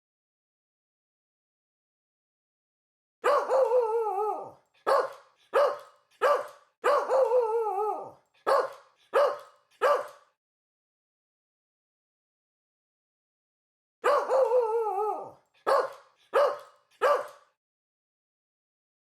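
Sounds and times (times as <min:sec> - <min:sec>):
dog bark-howl: 0:03.2 - 0:10.2, 0:14.0 - 0:17.5
dog barking sharply: 0:04.8 - 0:07.3, 0:08.4 - 0:10.3, 0:15.6 - 0:17.6.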